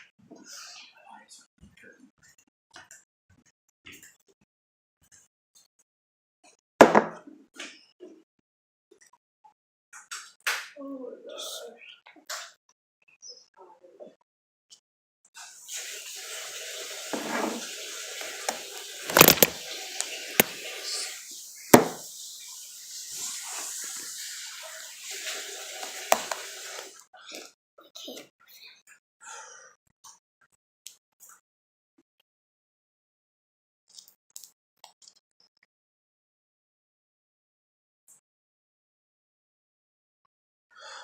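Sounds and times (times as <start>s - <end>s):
water running: 15.7s - 27.0s
sharp knocks and clatters: 18.5s - 19.6s, 21.8s - 22.0s.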